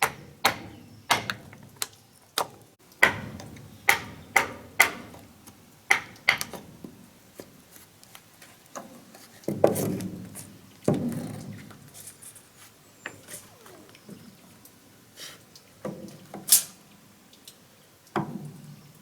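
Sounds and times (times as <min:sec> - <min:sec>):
sharp knocks on wood: 0:00.0 - 0:01.4, 0:03.0 - 0:05.1, 0:05.9 - 0:06.6.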